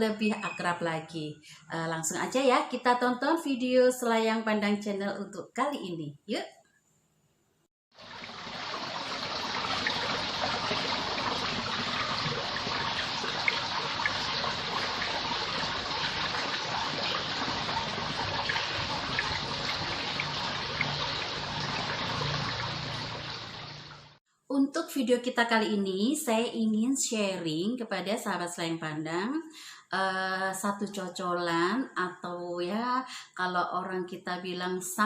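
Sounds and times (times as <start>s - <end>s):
water trickling and splashing: 7.9s - 24.2s.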